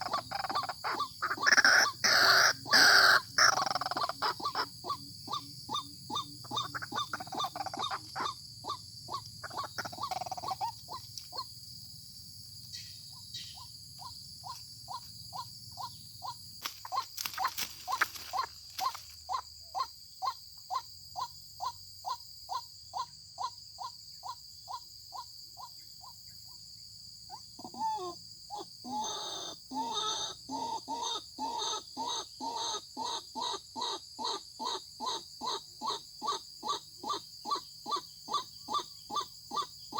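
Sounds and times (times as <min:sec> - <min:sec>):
waterhen repeated call: 0:00.0 - 0:08.8.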